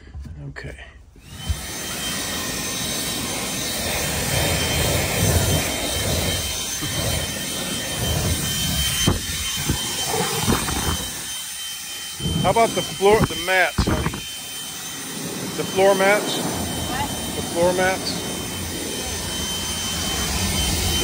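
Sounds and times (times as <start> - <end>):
leaf blower motor whine: 1.2 - 21.0
rush of air: 3.6 - 11.4.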